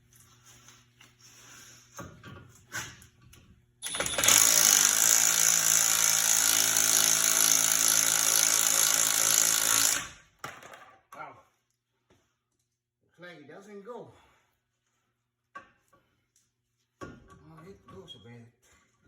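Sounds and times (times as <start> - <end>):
power tool running: 3.8 - 10.2.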